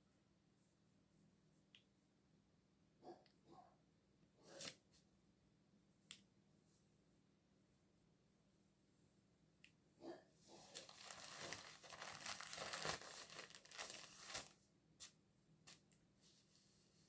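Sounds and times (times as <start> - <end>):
rustling and crinkling handling: 10.5 - 15.1.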